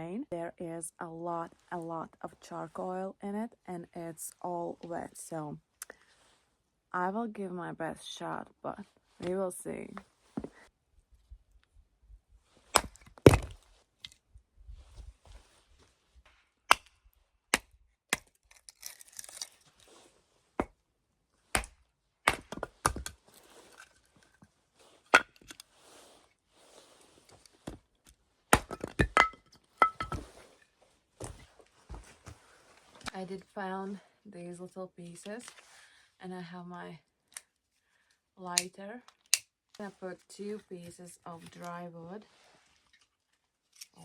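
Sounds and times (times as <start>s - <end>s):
hand axe chopping wood: 12.7s - 13.6s, 21.5s - 23.2s, 28.5s - 30.3s.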